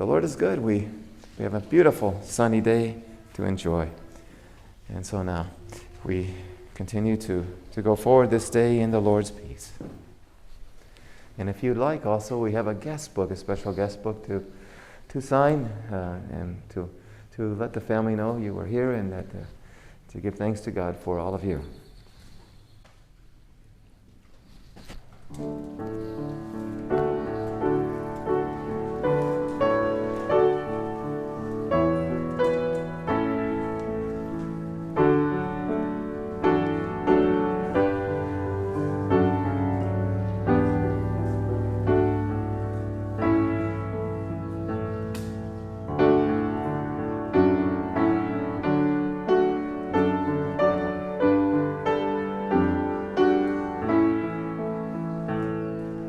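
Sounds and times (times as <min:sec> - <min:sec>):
slow gentle piano piece: 0:00.0 - 0:10.8, 0:24.4 - 0:56.0.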